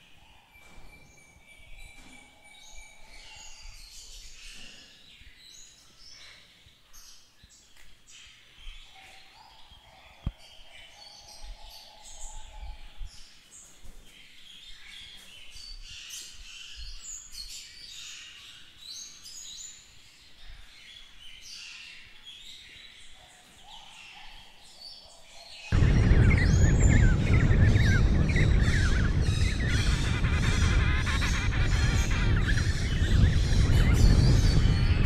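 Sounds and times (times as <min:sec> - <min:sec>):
birds chirping and singing: 0:00.0 - 0:35.0
low rumbles: 0:25.7 - 0:35.0.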